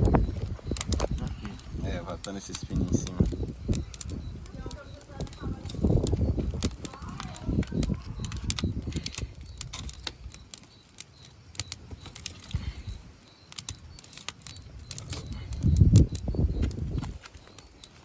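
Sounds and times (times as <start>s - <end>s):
dry wood snapping and clicking: 0.0s - 18.0s.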